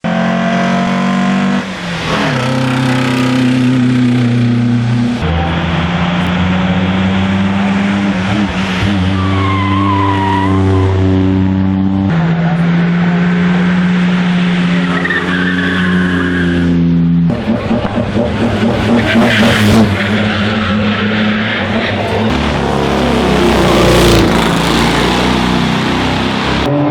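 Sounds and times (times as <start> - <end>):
race car engine running hard: 0.0 - 9.6, 16.9 - 26.9
tyres squealing: 8.3 - 11.3.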